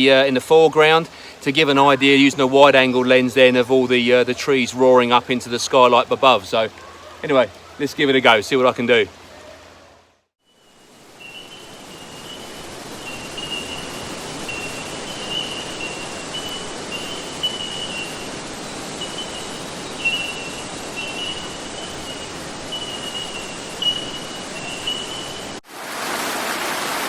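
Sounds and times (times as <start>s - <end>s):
creek water rushing and trickling: 0.0s - 27.0s
thin high-pitched buzz: 10.5s - 25.6s.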